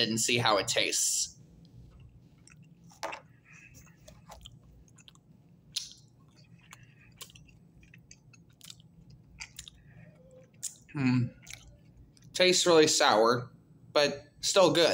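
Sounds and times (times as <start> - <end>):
person chewing gummy candy: 1.9 - 12.4.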